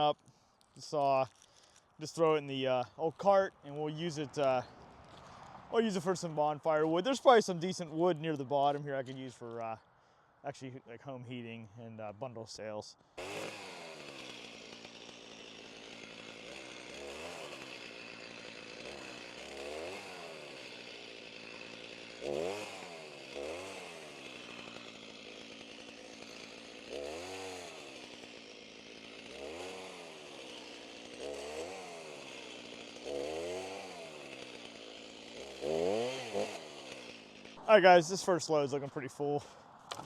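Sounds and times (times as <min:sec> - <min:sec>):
chainsaw cutting branch: 0:00.0 - 0:02.6, 0:13.2 - 0:39.0.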